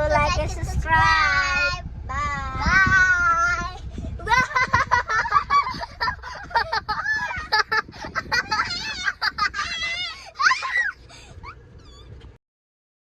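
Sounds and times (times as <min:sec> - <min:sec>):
children's wordless voices: 0:00.0 - 0:04.5.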